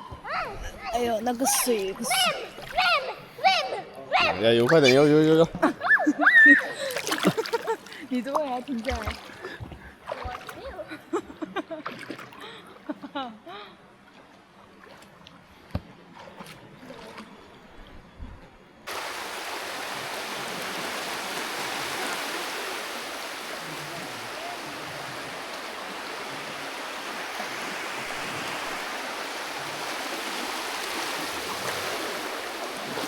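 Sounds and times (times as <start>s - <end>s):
rushing water: 0.9s - 3.1s, 6.7s - 10.7s, 18.9s - 33.0s.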